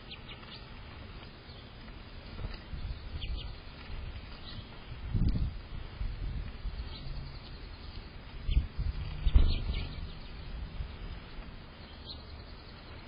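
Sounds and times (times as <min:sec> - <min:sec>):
outdoor background noise: 0:00.0 - 0:13.0
faint bird chirps: 0:02.7 - 0:04.8, 0:06.6 - 0:13.0.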